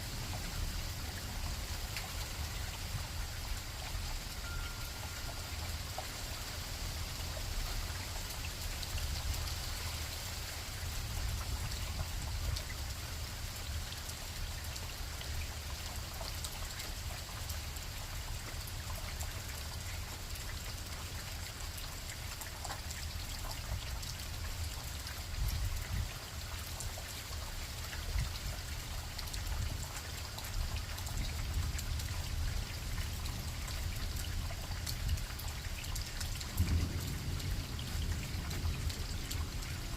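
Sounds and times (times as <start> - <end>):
rain pattering: 0.0 - 39.9
wind rumbling on microphone: 25.2 - 26.3.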